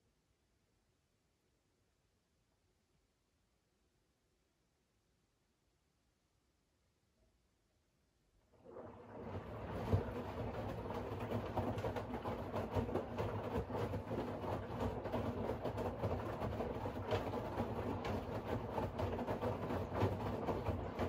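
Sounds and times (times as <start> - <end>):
washing machine running: 8.5 - 21.0.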